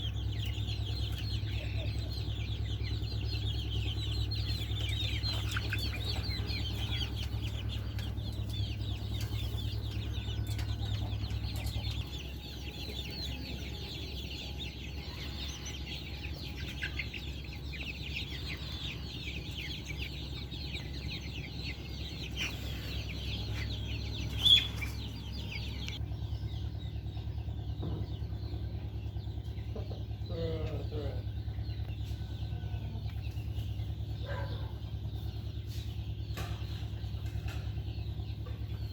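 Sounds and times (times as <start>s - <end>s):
hens clucking and chattering: 0.0s - 38.9s
steady low hum: 0.0s - 38.9s.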